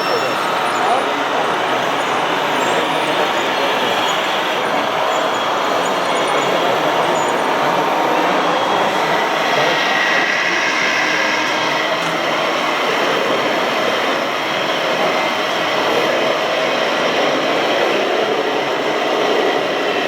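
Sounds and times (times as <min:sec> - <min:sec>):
small electric motors whining: 0:00.0 - 0:19.9.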